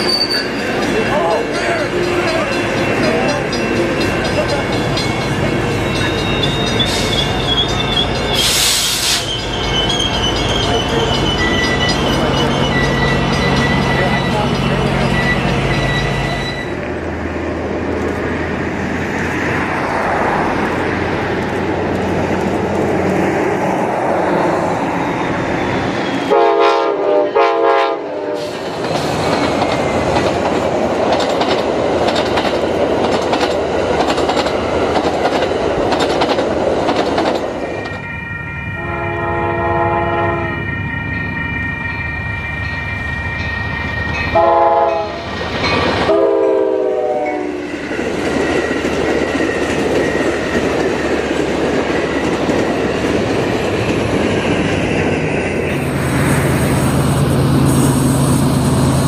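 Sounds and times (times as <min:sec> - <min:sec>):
train rumble on rails: 0:00.0 - 0:59.0
train horn blasts: 0:26.2 - 0:28.6, 0:38.8 - 0:40.7, 0:44.3 - 0:45.3, 0:46.0 - 0:47.7.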